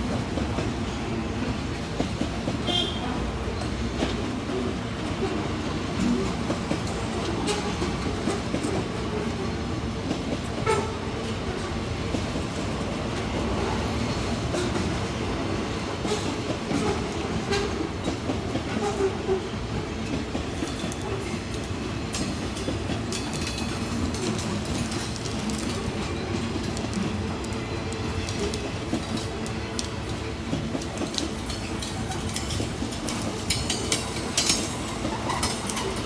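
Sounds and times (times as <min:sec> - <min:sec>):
freight train rumbling on rails: 0:00.0 - 0:36.0
train wheel clicks: 0:16.0 - 0:36.0.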